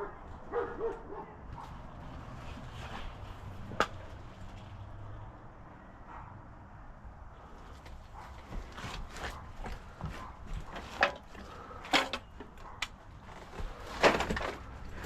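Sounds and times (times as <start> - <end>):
dog yipping: 0.0 - 1.7.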